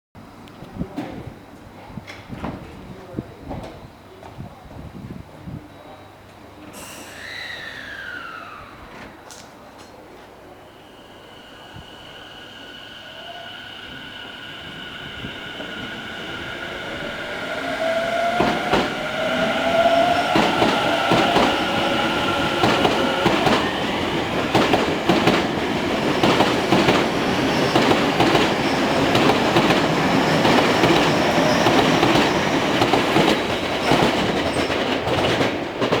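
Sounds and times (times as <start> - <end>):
electric train motor whine: 7.0 - 9.5, 10.4 - 24.5.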